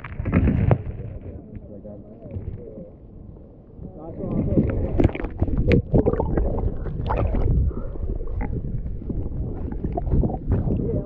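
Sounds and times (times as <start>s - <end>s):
water sloshing against hull: 0.0s - 11.0s
steady low rumble: 2.6s - 11.0s.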